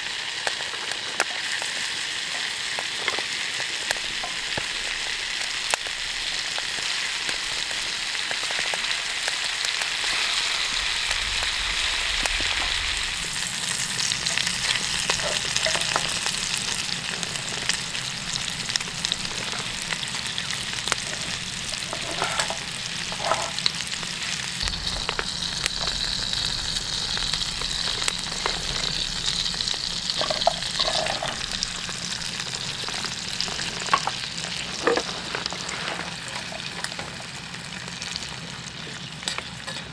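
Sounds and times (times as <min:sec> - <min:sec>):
food sizzling in a pan: 0:00.0 - 0:39.9
small pops and crackles: 0:24.6 - 0:35.6.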